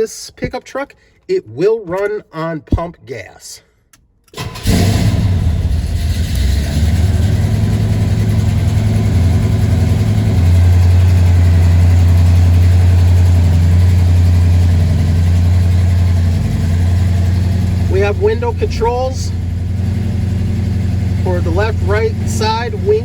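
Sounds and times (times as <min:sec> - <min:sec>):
car engine idling heavily: 0:05.0 - 0:23.0.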